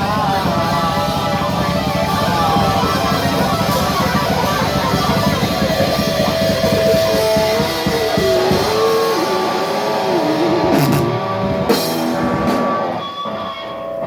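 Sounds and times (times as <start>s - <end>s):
drum kit: 0.0s - 13.2s
distorted electric guitars: 0.0s - 14.0s
cymbal crashes: 10.6s - 12.6s.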